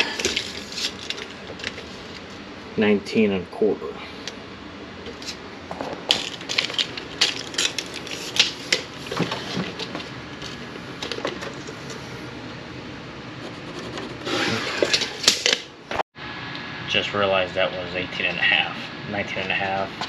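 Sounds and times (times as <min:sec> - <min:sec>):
scraping noise: 0:13.4 - 0:15.2.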